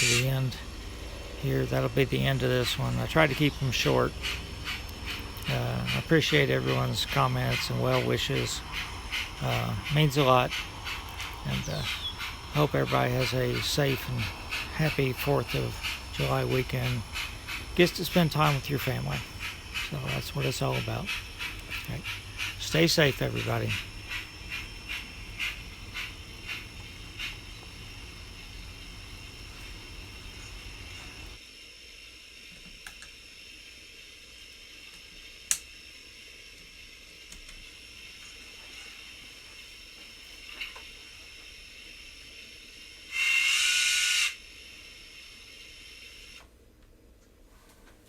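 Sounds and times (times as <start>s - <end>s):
steam locomotive hiss: 0.0s - 46.4s
sharp click: 35.5s - 35.7s.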